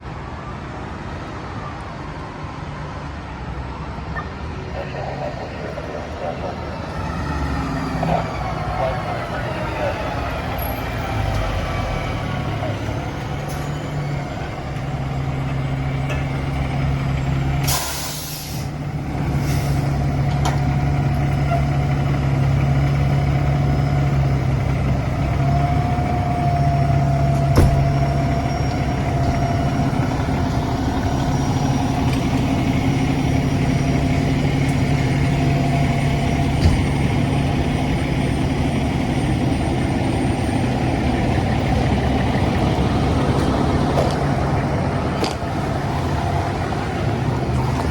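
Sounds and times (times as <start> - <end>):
diesel engine running: 4.3 - 47.9
air brake hiss: 17.6 - 18.7, 19.4 - 20.0.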